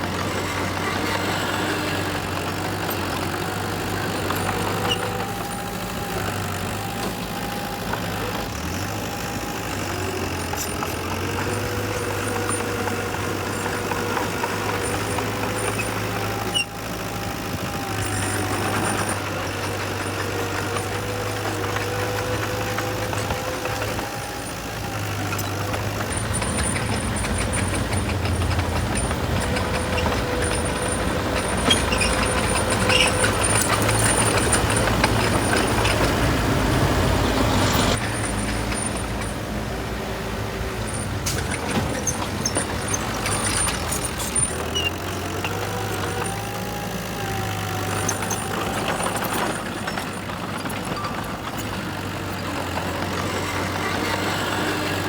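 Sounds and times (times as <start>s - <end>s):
heavy diesel machinery engines: 0.0s - 55.0s.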